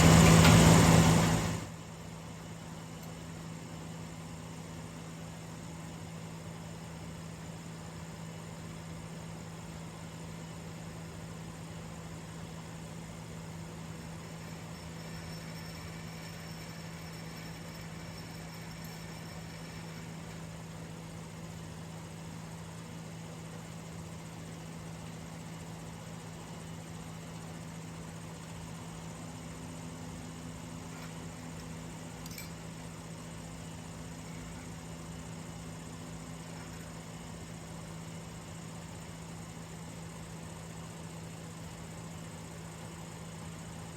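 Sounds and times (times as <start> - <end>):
air compressor running: 0.0 - 1.8, 13.8 - 22.1.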